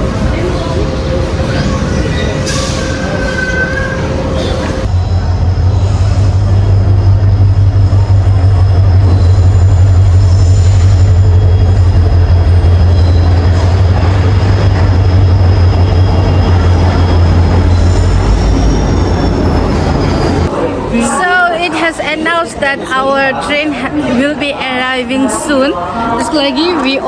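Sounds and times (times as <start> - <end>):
train rumbling past: 0.0 - 25.1
wheel squeal: 1.5 - 20.5.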